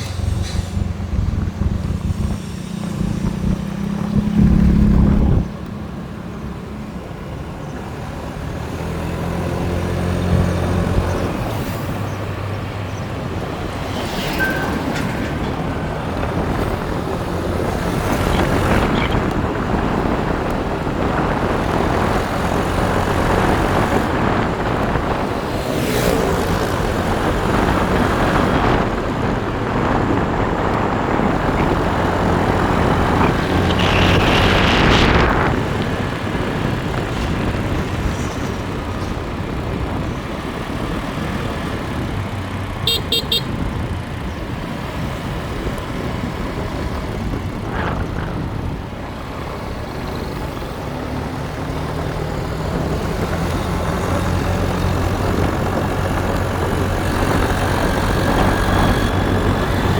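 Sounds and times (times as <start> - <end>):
wind rushing over microphone: 0.0 - 59.9
motorbike engine running: 15.6 - 44.6
horn short toots: 42.8 - 43.6.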